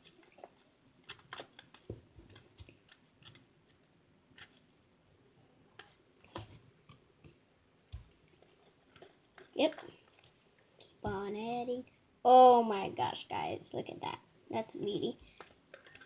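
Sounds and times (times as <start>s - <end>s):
slime being stirred: 0.0s - 4.7s, 5.8s - 11.3s, 15.1s - 16.0s.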